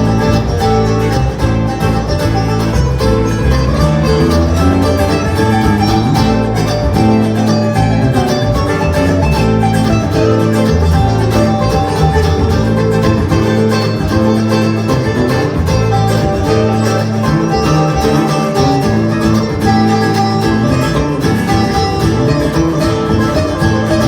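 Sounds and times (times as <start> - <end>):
banjo picking: 0.0 - 24.0
bass: 0.0 - 24.0
guitar picking: 0.0 - 24.0.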